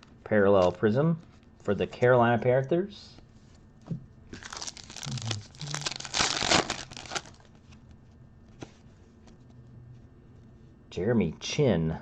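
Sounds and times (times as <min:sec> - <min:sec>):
plastic wrapper crinkling: 0:04.3 - 0:07.6.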